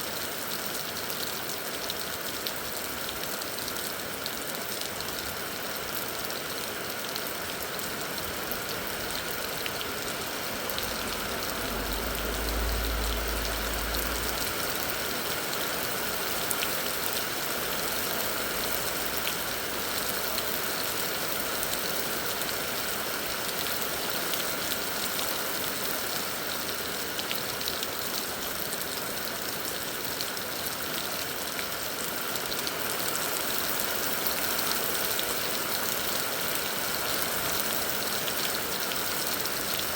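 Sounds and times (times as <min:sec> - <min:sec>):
heavy rain: 0:00.0 - 0:39.9
low rumble: 0:11.0 - 0:14.7.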